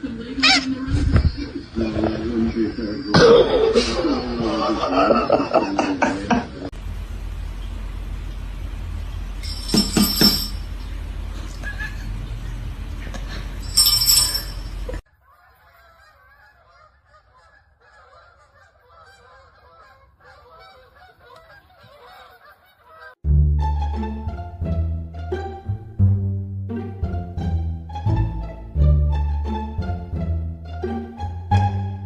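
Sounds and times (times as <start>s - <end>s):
steady low hum: 0.0s - 15.0s
flock of birds honking: 15.1s - 23.2s.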